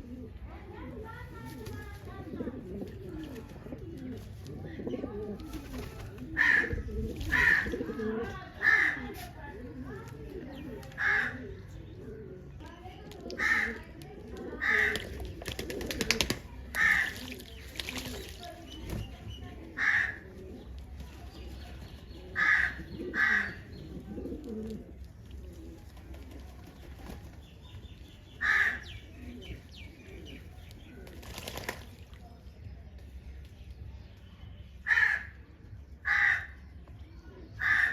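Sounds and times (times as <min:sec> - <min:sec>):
pigeons cooing: 0:00.0 - 0:31.8, 0:37.3 - 0:37.9
wings flapping: 0:05.4 - 0:06.4, 0:14.8 - 0:19.2, 0:30.9 - 0:32.1.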